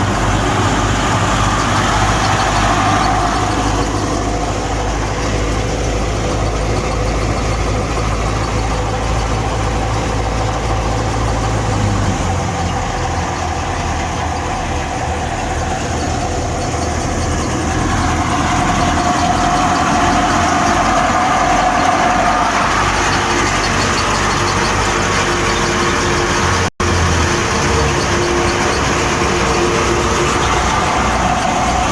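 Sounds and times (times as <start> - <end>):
threshing machinery hum: 0.0 - 31.9
tractor diesel engine running: 0.0 - 31.9.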